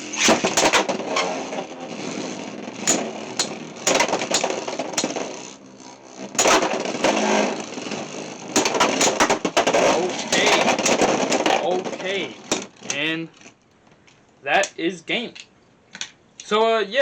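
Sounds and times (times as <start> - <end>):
spinning tops whirring: 0.0 - 13.0
spinning tops clacking together: 2.8 - 7.6, 8.6 - 13.0.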